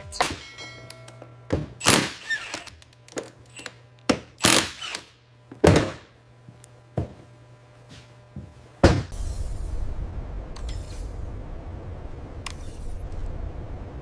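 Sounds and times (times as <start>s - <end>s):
heavy thunks and knocks: 8.8s - 9.2s.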